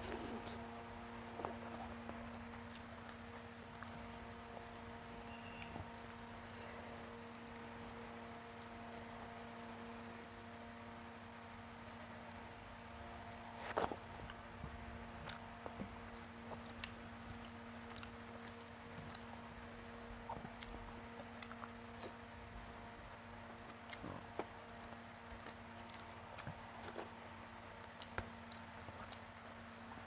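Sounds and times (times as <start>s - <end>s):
faint steady hum: 0.0s - 30.0s
person chewing with mouth clicks: 15.2s - 19.4s, 23.9s - 29.4s.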